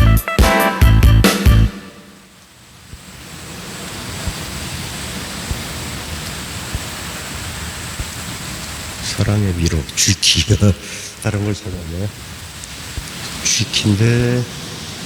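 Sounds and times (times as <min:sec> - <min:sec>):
steady electronic hiss: 0:00.0 - 0:15.0
faint clicks: 0:12.5 - 0:13.5.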